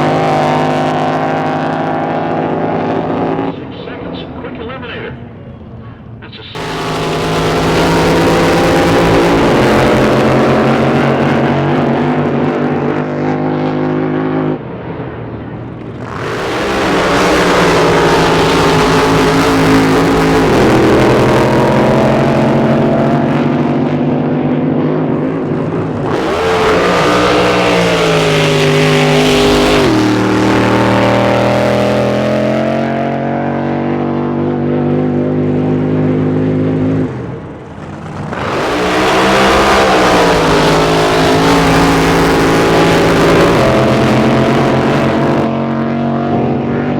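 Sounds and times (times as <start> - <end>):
racing boat engines revving: 0.0 - 46.9.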